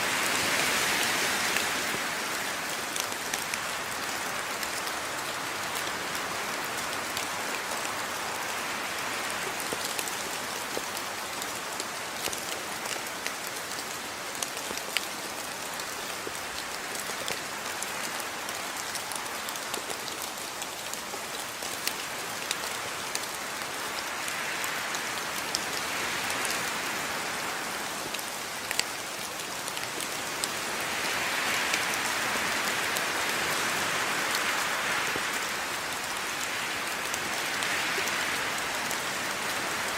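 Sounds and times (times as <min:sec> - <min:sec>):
steady rain falling: 0:00.0 - 0:39.9
raindrops ticking on a surface: 0:00.1 - 0:39.9.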